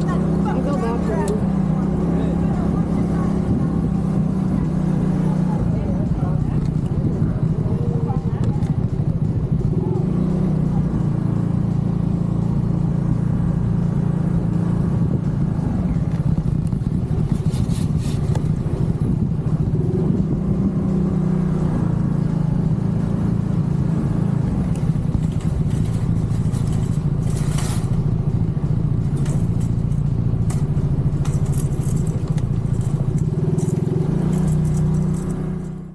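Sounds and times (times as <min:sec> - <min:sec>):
scooter engine running steadily: 0:00.0 - 0:35.9
light clicks and rattles: 0:24.6 - 0:35.8.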